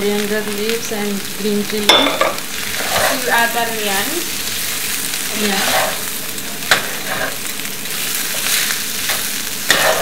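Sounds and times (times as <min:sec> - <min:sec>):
food sizzling in a pan: 0:00.0 - 0:10.0
spatula scraping a pan: 0:02.0 - 0:10.0.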